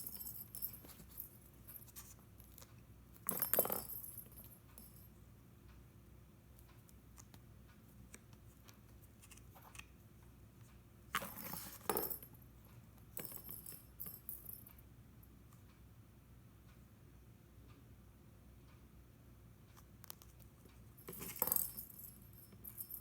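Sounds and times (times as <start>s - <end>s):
cat toy jingling and clattering: 0.0s - 2.2s, 3.3s - 5.0s, 11.2s - 12.4s, 21.0s - 23.0s.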